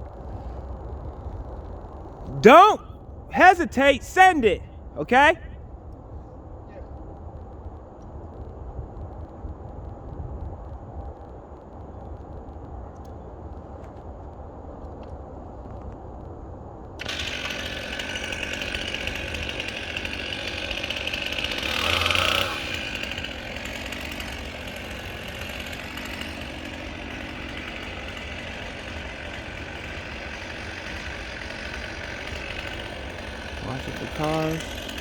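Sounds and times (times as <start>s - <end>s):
chainsaw cutting wood: 2.3s - 2.8s, 3.4s - 5.4s, 17.0s - 35.0s.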